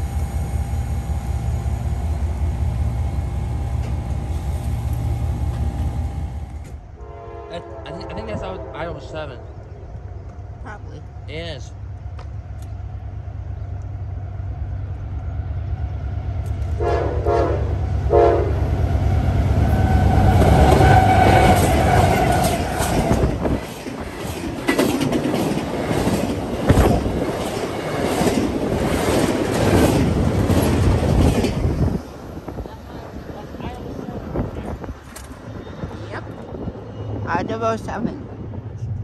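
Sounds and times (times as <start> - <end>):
diesel locomotive engine rumble: 0.0 - 39.0
train horn blasts: 7.0 - 9.6, 16.7 - 18.7, 19.6 - 23.3
clickety-clack of train wheels: 19.9 - 32.0.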